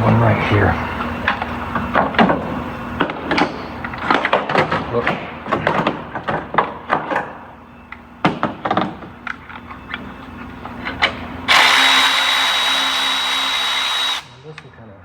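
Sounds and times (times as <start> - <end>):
battery power tool whining: 11.5 - 14.6.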